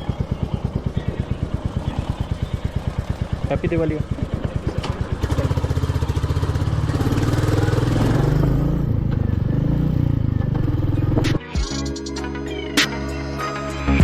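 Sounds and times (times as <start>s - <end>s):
motorcycle engine pulling away: 0.0s - 11.4s.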